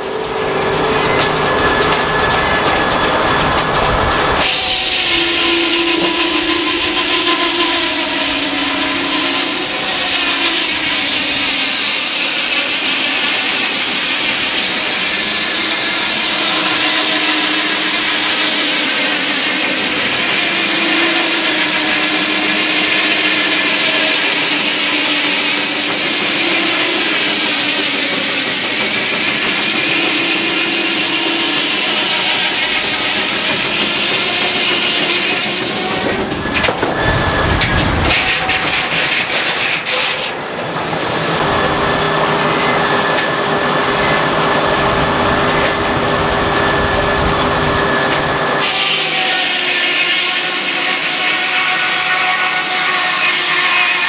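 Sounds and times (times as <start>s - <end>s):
steady whine: 0.0s - 48.6s
sawmill running: 0.0s - 54.0s
low rumble with rapid knocking: 41.4s - 48.6s.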